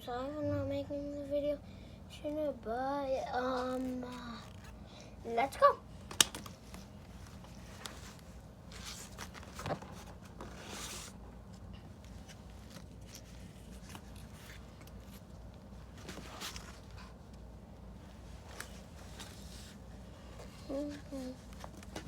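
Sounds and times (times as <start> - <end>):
low steady hum: 0.0 - 22.0
cardboard and tape rustling: 3.4 - 5.5, 6.1 - 17.5, 18.1 - 22.0.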